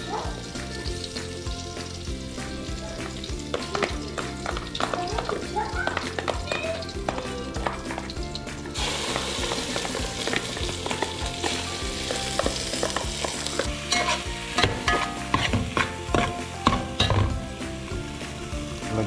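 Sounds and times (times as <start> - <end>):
butter sizzling in a pot: 0.0 - 19.0
metal ladle scraping a pot: 8.8 - 17.2.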